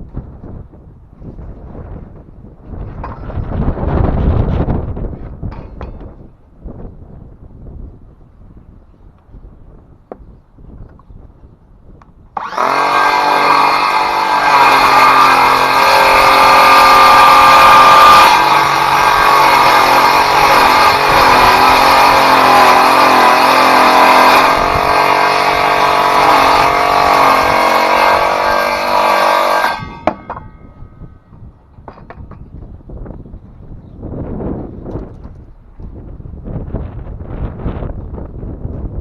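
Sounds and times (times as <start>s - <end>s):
circular saw cutting wood: 12.4s - 30.9s.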